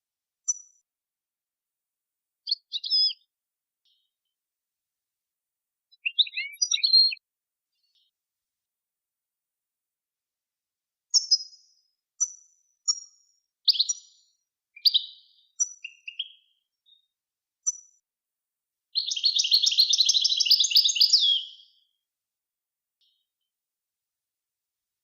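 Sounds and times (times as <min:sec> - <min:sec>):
songbird chirping and twittering: 0:02.4 - 0:04.3, 0:05.9 - 0:08.2, 0:11.1 - 0:18.0, 0:19.0 - 0:22.0.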